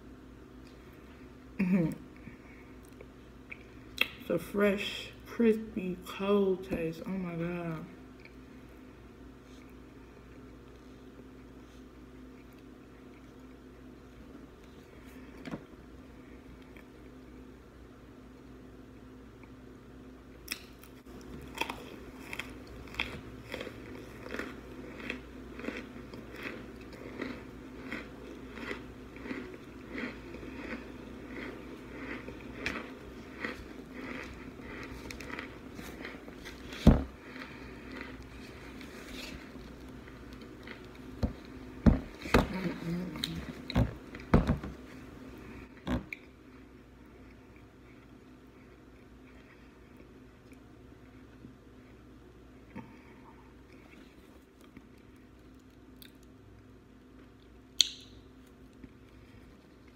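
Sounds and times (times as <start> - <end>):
crunching frozen food: 20.5 - 46.3.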